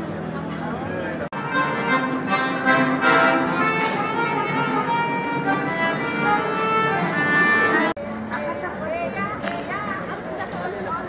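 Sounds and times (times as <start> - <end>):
violin playing held notes: 1.4 - 8.0.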